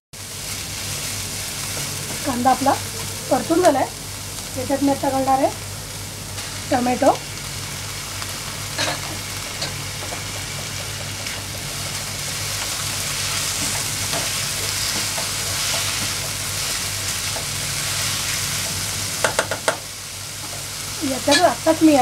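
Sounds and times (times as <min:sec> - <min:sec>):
vegetables sizzling in hot oil: 0:00.2 - 0:22.0
spatula knocking on pan: 0:08.8 - 0:11.8, 0:19.2 - 0:19.9.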